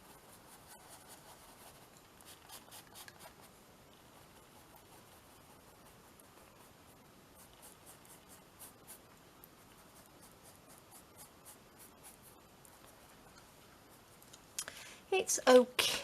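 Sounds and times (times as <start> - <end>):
art tool scratching paper: 0.0 - 9.1.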